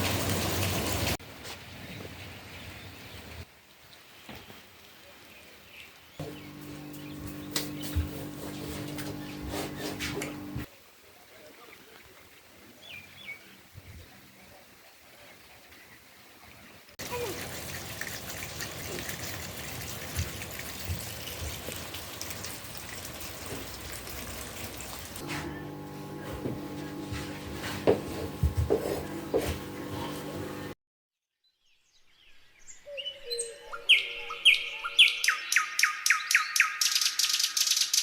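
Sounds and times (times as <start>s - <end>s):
rain hiss: 0.0s - 1.2s
steady hum: 6.2s - 10.7s, 25.2s - 30.8s
drips and ticks: 17.0s - 25.2s.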